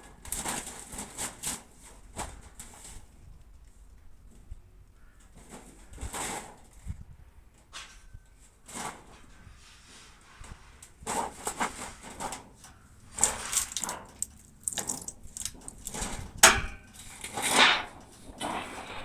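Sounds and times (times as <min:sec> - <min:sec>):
knocks and scraping: 0:08.7 - 0:19.0.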